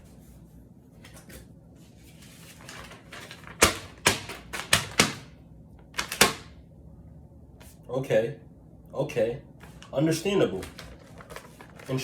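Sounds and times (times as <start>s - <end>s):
packaging rustling: 2.2s - 5.1s, 9.6s - 12.0s.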